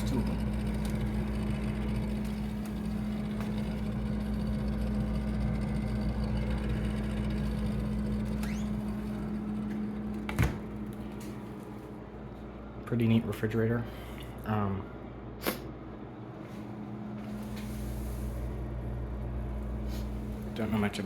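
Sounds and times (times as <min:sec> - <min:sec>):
refrigerator humming: 0:00.0 - 0:21.0
refrigerator knock: 0:10.3 - 0:10.7.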